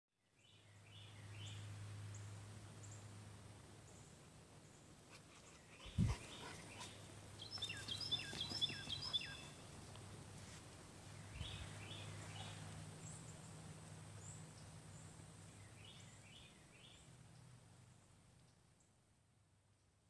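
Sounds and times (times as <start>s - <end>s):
songbird singing whistled notes: 6.3s - 9.7s.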